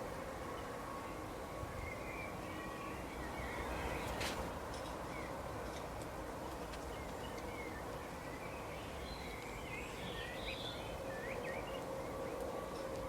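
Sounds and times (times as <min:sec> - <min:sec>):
small birds chirping: 0:06.4 - 0:12.8.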